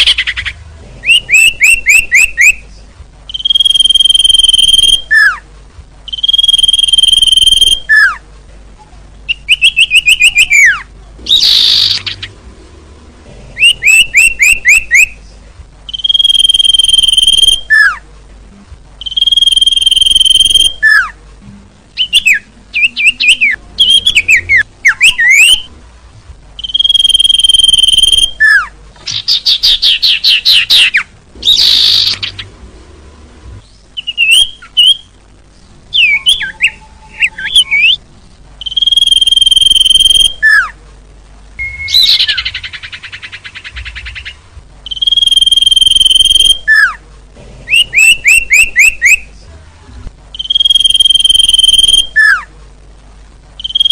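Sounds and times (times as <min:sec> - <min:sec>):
songbird calls: 0:00.0 - 0:05.4, 0:06.1 - 0:08.2, 0:09.3 - 0:12.4, 0:13.6 - 0:15.3, 0:15.9 - 0:18.0, 0:19.0 - 0:21.2, 0:26.6 - 0:32.5, 0:38.6 - 0:40.8, 0:41.6 - 0:47.0, 0:50.3 - 0:52.5, 0:53.6 - 0:53.9.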